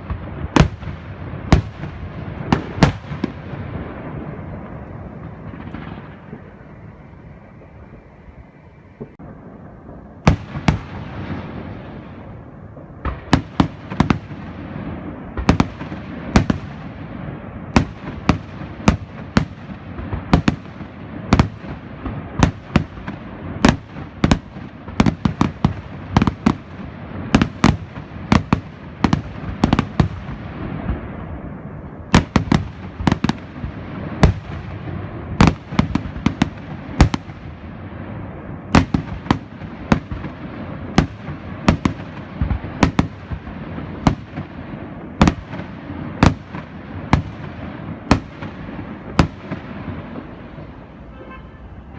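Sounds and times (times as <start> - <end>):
rumble and crackle: 0.0 - 51.0
fireworks bangs: 0.0 - 51.9.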